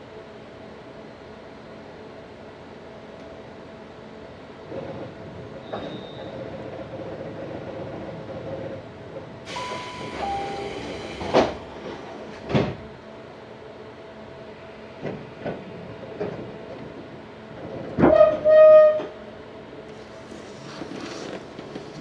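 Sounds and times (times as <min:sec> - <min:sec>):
train doors slamming shut: 0:09.5 - 0:12.9, 0:17.8 - 0:19.2.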